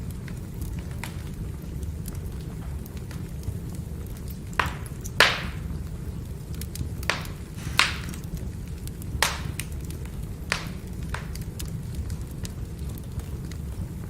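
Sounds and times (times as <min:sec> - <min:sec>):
fire rumbling: 0:00.0 - 0:14.0
firewood crackling and popping: 0:00.0 - 0:14.0.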